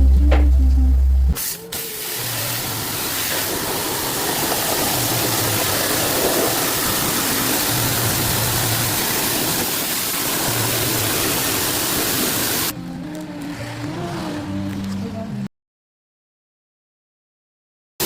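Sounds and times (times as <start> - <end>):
water spray hissing: 1.4 - 12.7.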